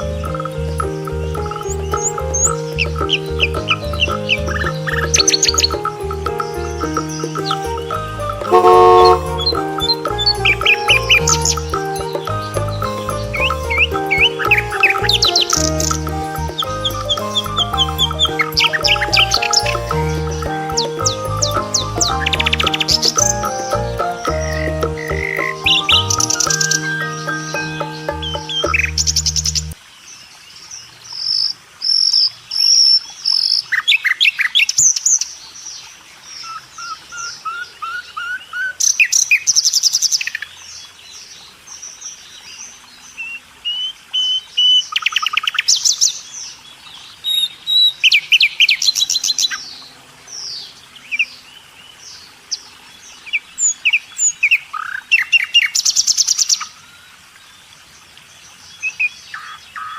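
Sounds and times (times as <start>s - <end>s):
birds chirping and calling: 0.0s - 29.8s.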